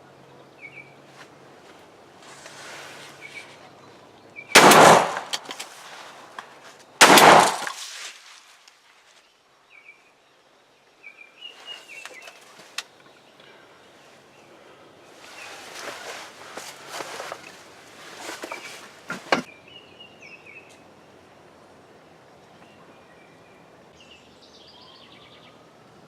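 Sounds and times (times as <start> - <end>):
shotgun blasts: 4.6 - 5.6, 7.0 - 7.8.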